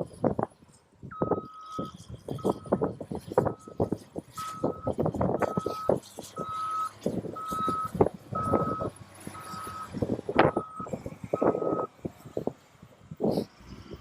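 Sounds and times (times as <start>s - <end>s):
wind buffeting microphone: 0.0s - 14.0s
reversing alarm beeping: 1.1s - 2.9s, 3.5s - 11.9s.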